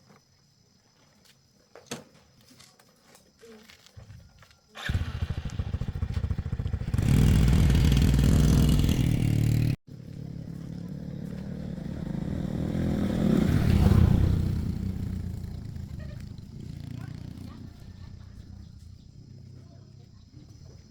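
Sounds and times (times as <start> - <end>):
small motorcycle engine pulsing: 4.8 - 20.6.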